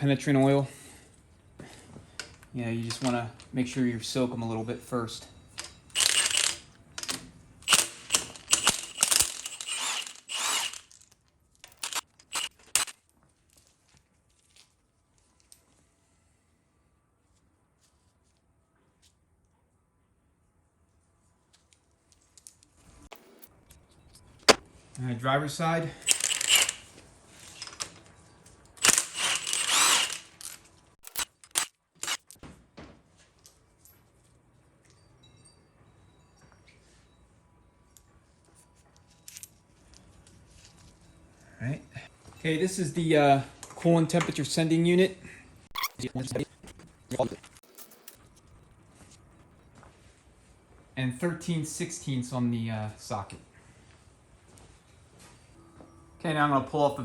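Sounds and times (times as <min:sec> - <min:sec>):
sharp metal clicks: 0:05.6 - 0:11.0, 0:11.6 - 0:12.9, 0:26.0 - 0:26.9, 0:28.8 - 0:32.4
loud noisy tool burst: 0:06.0 - 0:06.6, 0:07.7 - 0:10.9, 0:11.7 - 0:12.9, 0:26.0 - 0:26.9, 0:28.8 - 0:32.2.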